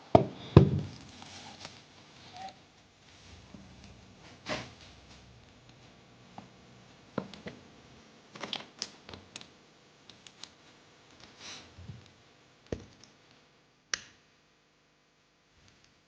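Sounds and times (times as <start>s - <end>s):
small objects clicking and tapping: 12.7s - 13.3s.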